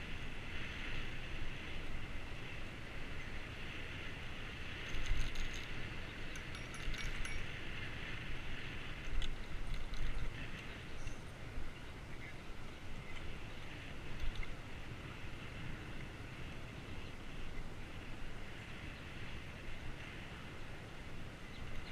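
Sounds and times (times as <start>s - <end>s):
wind: 0.0s - 21.9s
light metallic jingling rattles: 4.7s - 11.4s.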